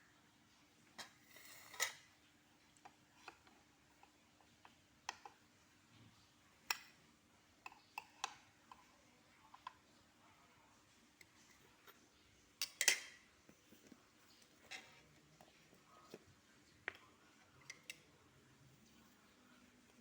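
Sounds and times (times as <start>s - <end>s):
utensils and dishes clinking: 1.0s - 2.1s, 12.6s - 13.2s.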